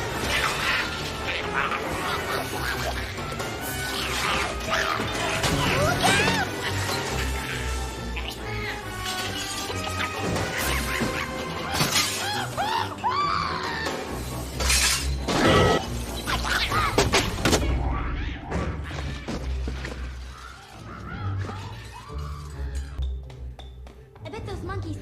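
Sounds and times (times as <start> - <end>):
monkeys shrieking: 0.0 - 13.9, 16.2 - 17.0, 20.0 - 23.0
background music: 0.0 - 25.0
glass and crockery smashing: 9.0 - 12.4, 14.6 - 15.4.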